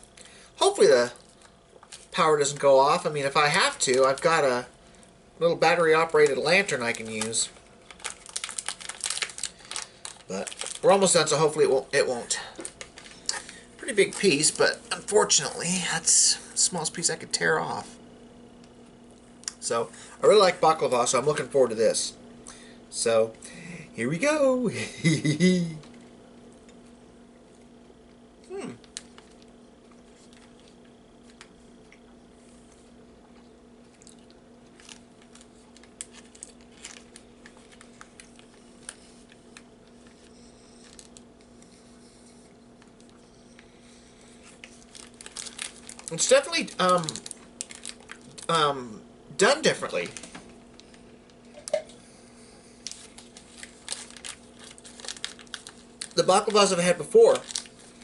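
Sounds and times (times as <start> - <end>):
man humming mm: 28.4 - 28.8
man chewing: 28.8 - 46.1.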